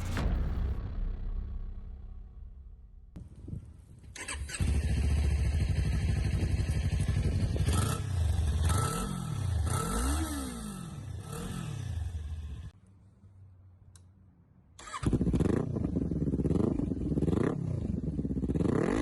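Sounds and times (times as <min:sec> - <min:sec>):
motorcycle engine idling: 0:03.2 - 0:12.7, 0:15.1 - 0:19.0
motorcycle engine starting: 0:03.2 - 0:12.7, 0:14.8 - 0:19.0
motorcycle engine revving: 0:04.1 - 0:12.7, 0:14.8 - 0:19.0.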